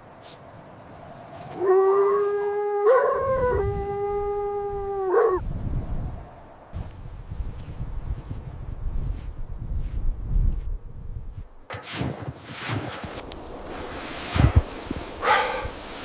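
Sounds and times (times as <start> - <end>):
dog howling: 1.6 - 5.4.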